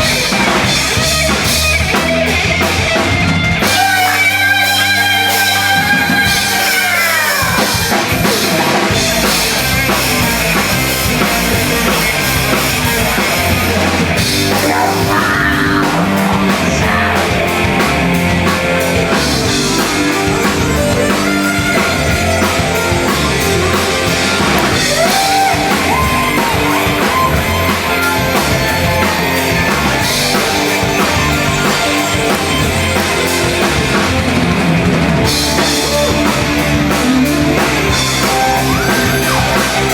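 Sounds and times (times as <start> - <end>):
bass guitar: 0.0 - 39.9
distorted electric guitars: 0.0 - 39.9
drum kit: 0.0 - 39.9.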